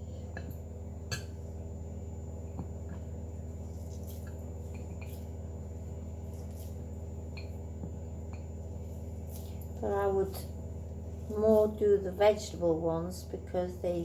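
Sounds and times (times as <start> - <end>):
low background hum: 0.0 - 14.0
dough being handled: 2.5 - 12.4.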